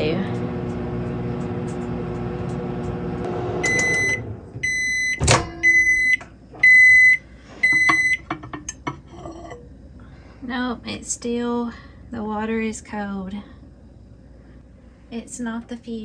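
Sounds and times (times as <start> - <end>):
microwave oven humming: 0.0 - 16.0
microwave beeps: 3.6 - 8.5.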